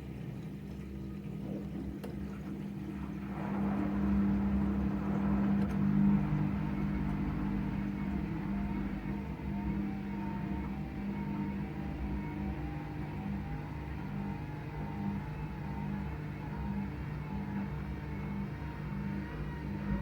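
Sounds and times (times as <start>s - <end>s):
washing machine motor hum: 0.0s - 20.0s
washing machine rushing noise: 0.0s - 20.0s.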